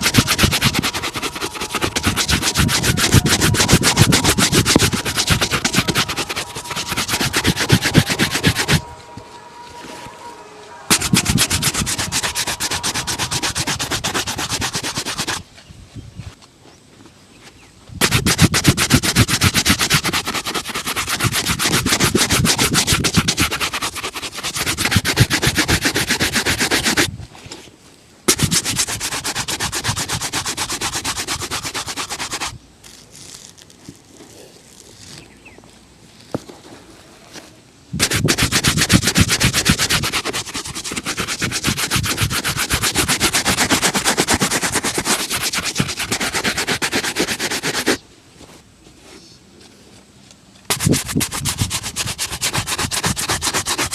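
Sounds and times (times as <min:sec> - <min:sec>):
buffing a leather shoe: 0:00.0 - 0:08.9, 0:10.9 - 0:15.4, 0:18.0 - 0:27.1, 0:28.3 - 0:32.6, 0:38.0 - 0:48.0, 0:50.7 - 0:53.9.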